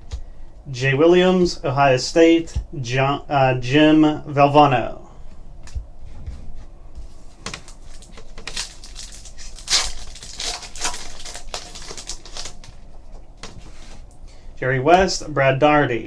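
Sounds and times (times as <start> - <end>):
cards and wrappers rustling: 5.1 - 14.5.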